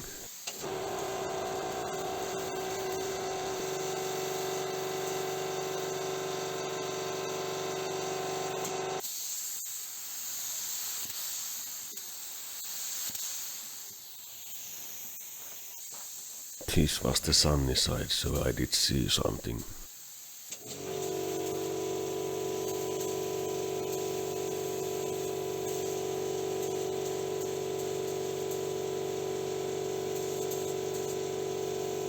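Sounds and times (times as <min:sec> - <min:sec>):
steady hum: 0:16.6 - 0:19.9.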